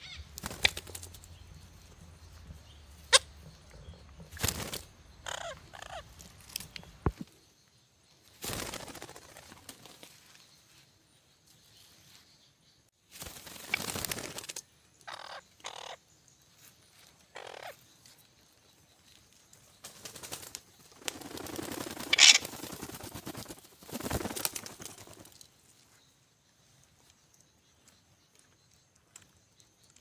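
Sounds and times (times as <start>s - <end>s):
parrots squawking: 5.2s - 6.0s.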